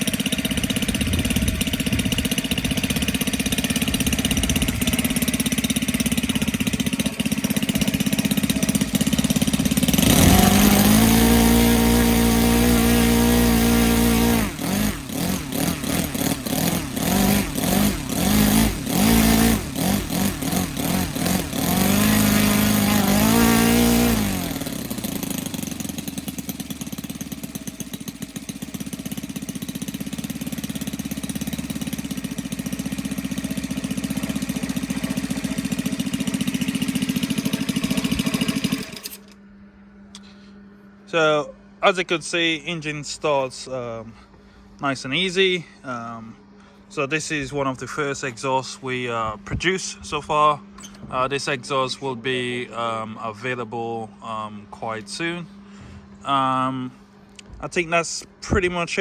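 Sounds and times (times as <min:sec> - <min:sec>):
model aircraft engine revving: 0:00.0 - 0:39.4.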